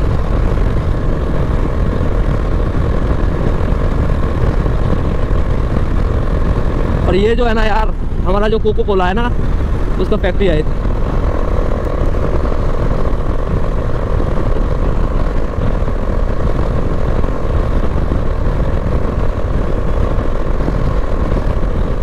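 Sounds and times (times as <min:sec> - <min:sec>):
motorcycle engine running: 0:00.0 - 0:22.0
wind rushing: 0:00.0 - 0:22.0.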